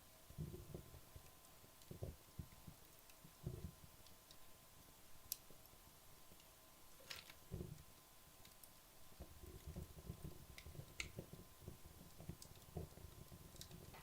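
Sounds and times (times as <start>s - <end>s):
logs crackling and popping: 0.2s - 14.0s
flames fluttering: 6.4s - 14.0s.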